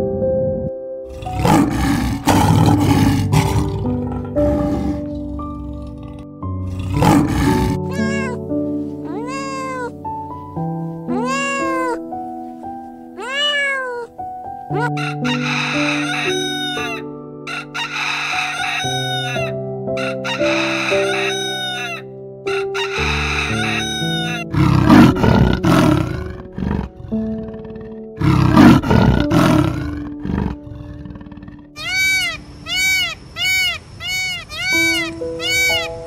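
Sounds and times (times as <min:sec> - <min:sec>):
background music of held chords: 0:00.0 - 0:32.0
rooster crowing: 0:14.8 - 0:25.2, 0:31.8 - 0:36.0.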